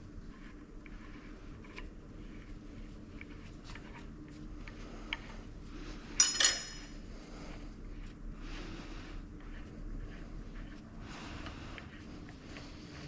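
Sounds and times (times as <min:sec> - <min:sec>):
low steady hum: 0:00.0 - 0:13.0
metal parts clinking: 0:06.2 - 0:07.0.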